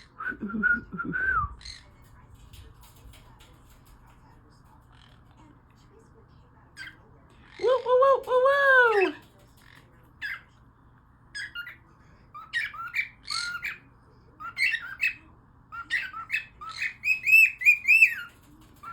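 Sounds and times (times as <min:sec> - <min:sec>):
parrot squawks and chirps: 0:11.3 - 0:18.9.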